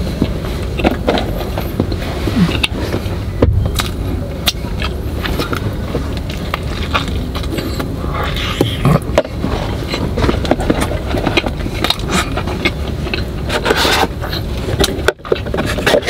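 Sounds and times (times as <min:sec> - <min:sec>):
car idling with air conditioning: 0:00.0 - 0:16.0
man chewing a burger: 0:00.0 - 0:16.0.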